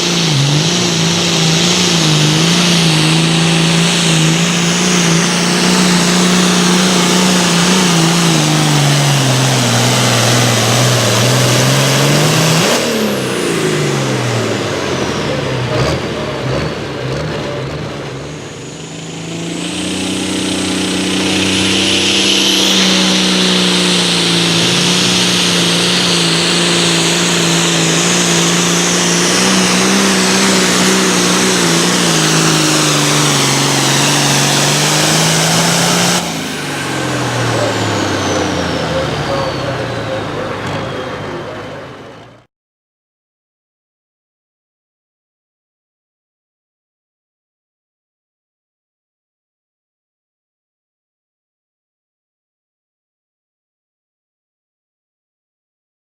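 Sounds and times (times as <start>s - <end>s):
pulling tractor diesel engine: 0.0s - 42.5s.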